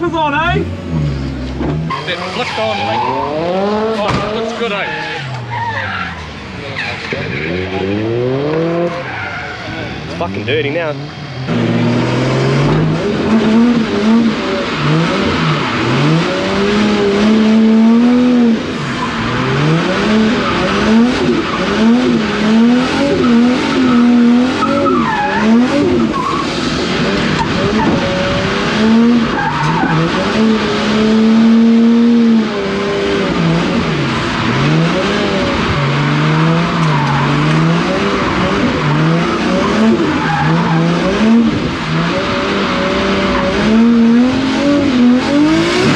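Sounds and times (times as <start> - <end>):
car engine revving hard: 0.0 - 45.9
tyre squeal: 1.8 - 3.5, 4.6 - 8.0, 23.0 - 26.5.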